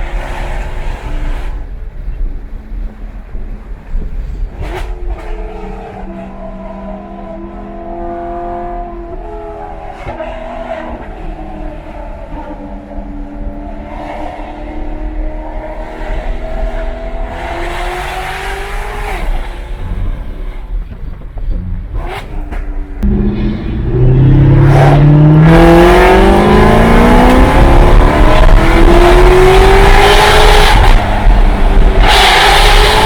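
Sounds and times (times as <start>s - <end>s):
car engine and exhaust: 0.0s - 33.0s
road noise: 0.0s - 33.0s.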